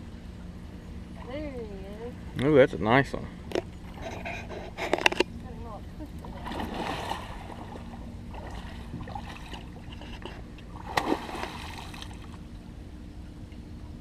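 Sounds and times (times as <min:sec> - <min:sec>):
light water noise: 0:00.0 - 0:14.0
low steady hum: 0:00.0 - 0:14.0
fish splashing at surface: 0:10.8 - 0:12.4.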